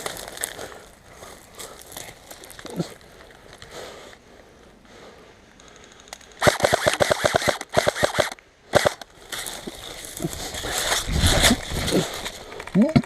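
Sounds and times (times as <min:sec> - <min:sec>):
airsoft gun firing full auto: 0:06.4 - 0:09.0.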